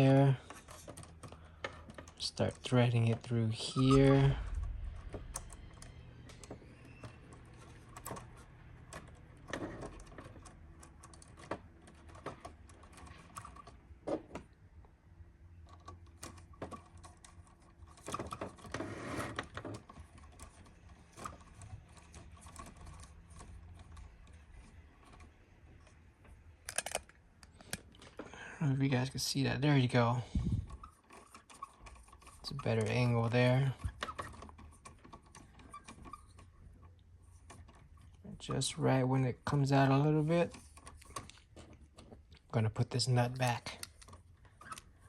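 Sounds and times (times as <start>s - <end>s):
faint low hum: 0.0s - 13.8s.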